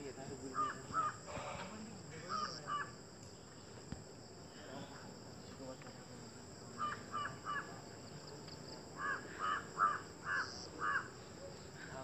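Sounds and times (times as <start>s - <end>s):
bird calling: 0.5s - 3.0s, 9.0s - 11.3s.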